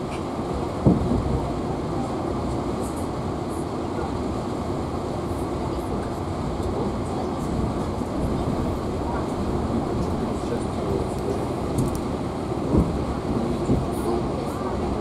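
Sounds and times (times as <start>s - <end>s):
train wheels rumbling: 6.0s - 15.0s.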